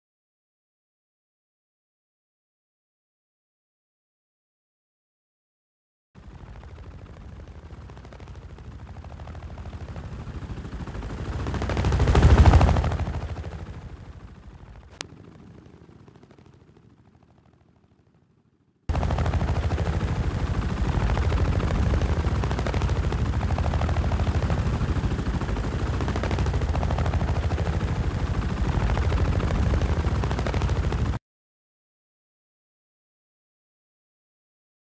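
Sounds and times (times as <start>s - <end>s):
helicopter flying past: 6.2s - 31.2s.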